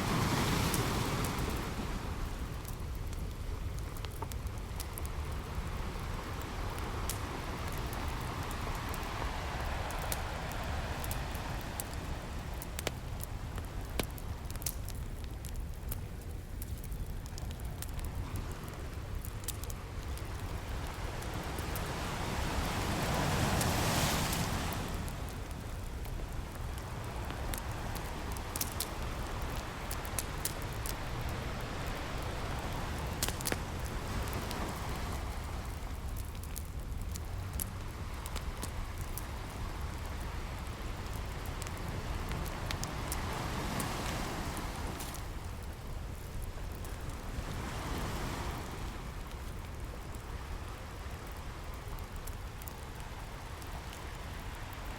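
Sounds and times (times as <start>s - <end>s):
ocean waves: 0.0s - 3.0s, 4.8s - 14.6s, 18.1s - 49.6s
burning wood popping: 0.0s - 50.8s
campfire crackling: 0.0s - 54.9s.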